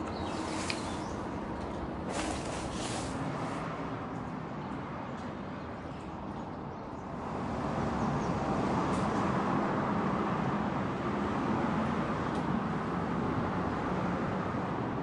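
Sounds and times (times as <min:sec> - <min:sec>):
car engine and road noise: 0:07.2 - 0:15.0.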